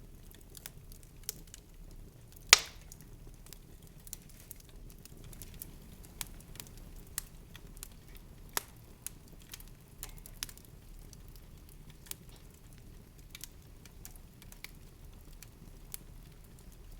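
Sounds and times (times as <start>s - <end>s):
sharp crackles and clicks: 2.5s - 3.6s.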